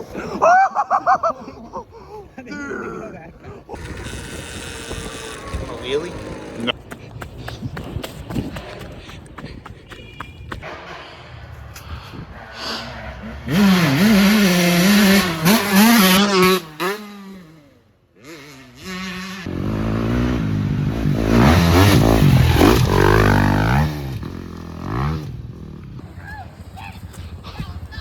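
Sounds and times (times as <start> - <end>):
dirt bike engine revving: 3.8 - 6.8, 12.4 - 26.1.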